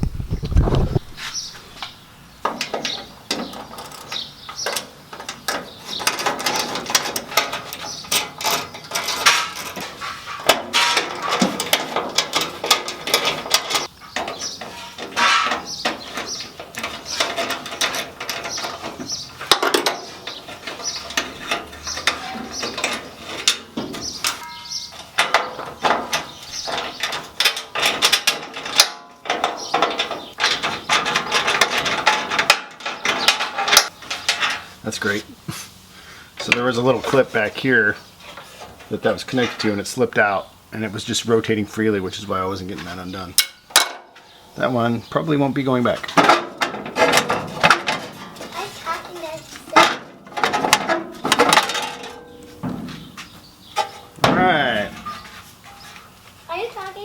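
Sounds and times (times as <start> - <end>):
metal tools clinking: 2.6 - 35.2, 45.9 - 56.0.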